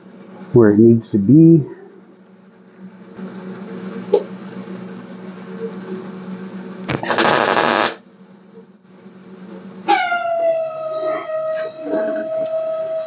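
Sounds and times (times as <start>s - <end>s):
steady hum: 0.0s - 9.9s
loud harsh power tool burst: 6.9s - 8.0s
tool motor whine: 6.9s - 8.0s.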